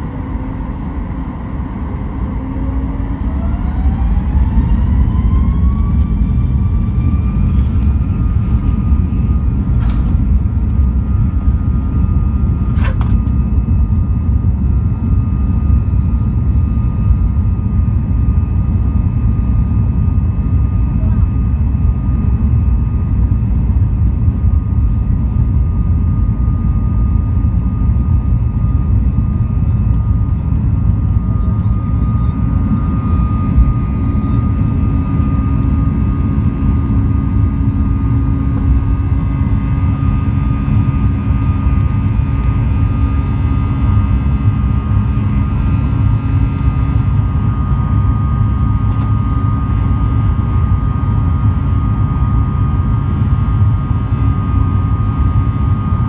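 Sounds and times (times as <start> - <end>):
faint steady whine: 0.0 - 20.4, 21.0 - 56.0
jet engine cabin rumble: 0.0 - 56.0.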